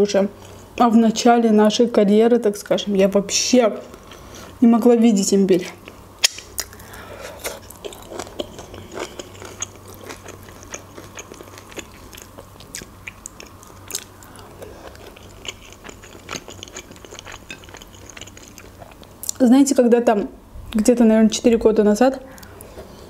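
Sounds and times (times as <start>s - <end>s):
person chewing chicken: 5.8s - 19.4s.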